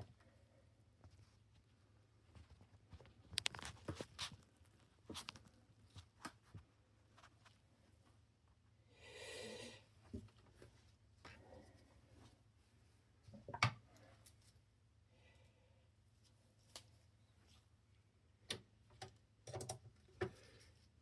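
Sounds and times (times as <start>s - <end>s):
faint clicks and taps of parts: 18.5s - 20.6s.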